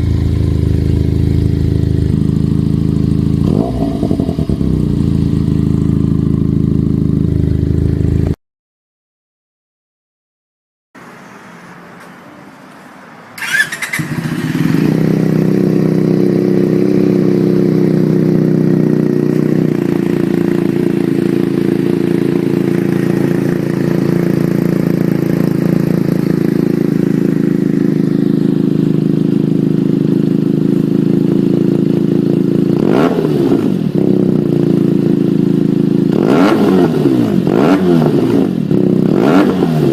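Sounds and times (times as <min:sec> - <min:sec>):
motorcycle engine idling: 0:00.0 - 0:08.4, 0:13.4 - 0:36.5
motorcycle engine revving: 0:00.0 - 0:08.4, 0:13.4 - 0:39.9.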